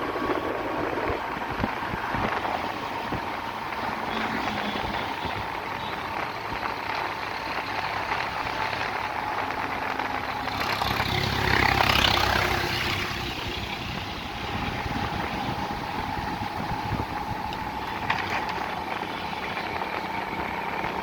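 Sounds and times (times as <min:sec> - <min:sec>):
road traffic noise: 0:00.0 - 0:21.0
vehicle passing close by: 0:09.6 - 0:18.0.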